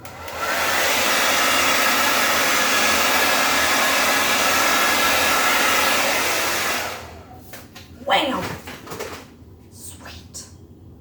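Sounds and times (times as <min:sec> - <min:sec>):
hair dryer running: 0:00.0 - 0:07.7.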